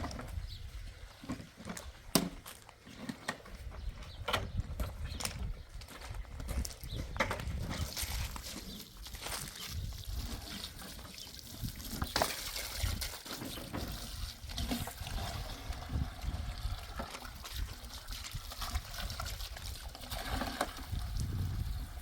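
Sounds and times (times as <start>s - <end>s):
water trickling and splashing: 7.6s - 22.0s.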